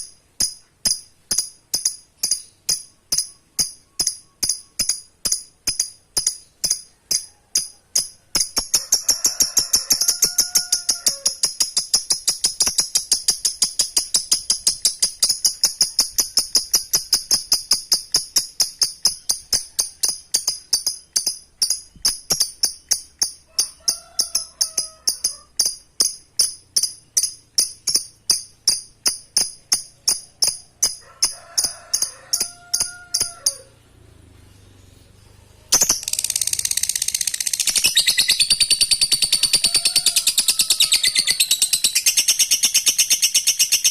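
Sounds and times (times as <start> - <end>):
bird high-pitched chattering call: 6.2 - 28.8, 34.5 - 43.9.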